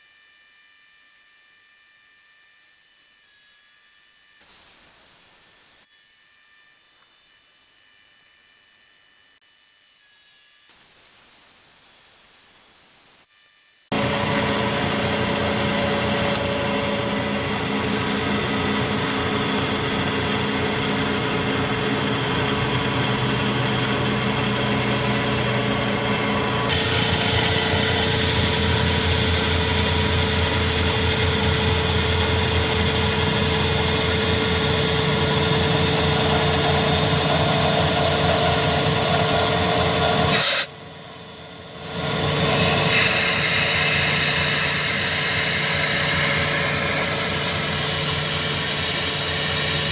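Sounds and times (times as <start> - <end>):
end mill cutting metal: 13.9 - 49.9
milling machine hum: 13.9 - 49.9.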